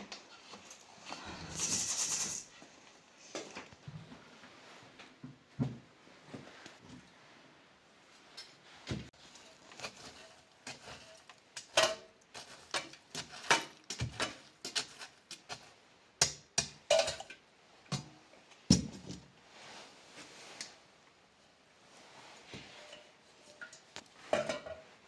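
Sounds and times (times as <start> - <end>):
pots and utensils clinking: 8.4 - 15.6, 16.2 - 18.1, 22.6 - 25.0.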